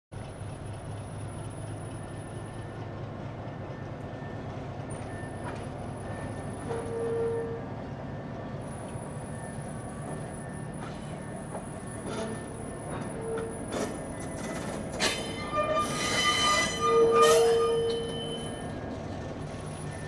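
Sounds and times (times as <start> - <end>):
locomotive engine hum: 0.2 - 20.0
wheel squeal: 5.1 - 7.6, 11.5 - 19.0.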